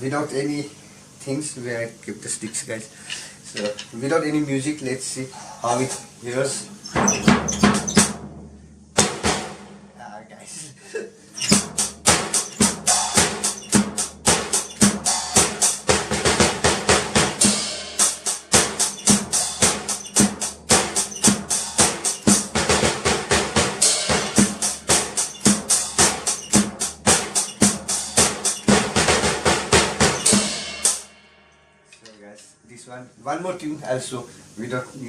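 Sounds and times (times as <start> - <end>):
drum kit groove: 2.2 - 10.2, 11.3 - 32.4
ringing cymbals: 11.4 - 16.4, 17.1 - 32.0.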